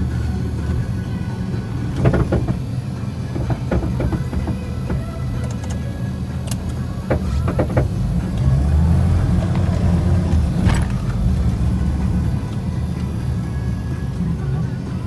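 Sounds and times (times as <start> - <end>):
suv engine under load: 0.0 - 15.0
sharp knocks or snaps: 2.0 - 2.6, 3.4 - 5.8, 6.5 - 8.0.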